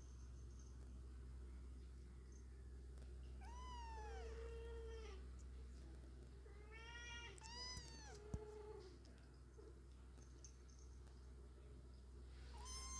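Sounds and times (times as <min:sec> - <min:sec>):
cat meowing faintly: 0:06.5 - 0:09.0, 0:12.5 - 0:12.9.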